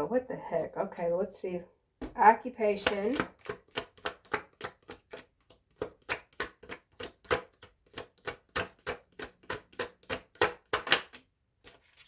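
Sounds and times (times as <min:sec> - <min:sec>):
cards being shuffled: 0:10.3 - 0:12.0.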